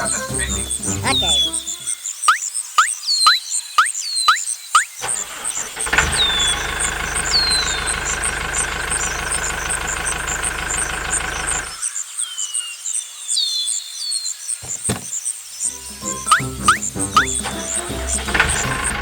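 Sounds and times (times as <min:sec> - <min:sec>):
small engine running: 0:05.0 - 0:11.8, 0:16.0 - 0:19.0
short high falling chirps: 0:15.6 - 0:18.3.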